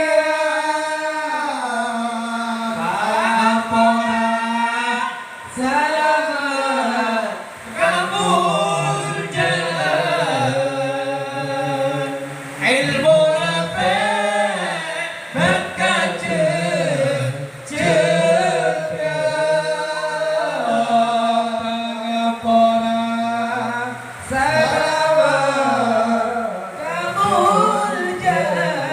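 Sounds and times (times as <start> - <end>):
man singing unaccompanied: 0.0 - 28.9.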